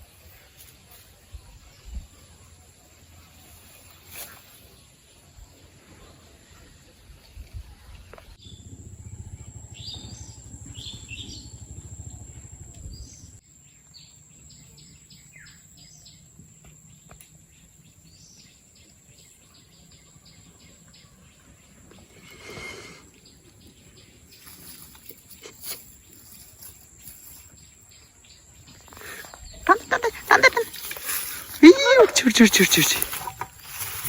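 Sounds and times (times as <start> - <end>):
low rumble: 8.4 - 13.4
small birds chirping: 8.4 - 34.0.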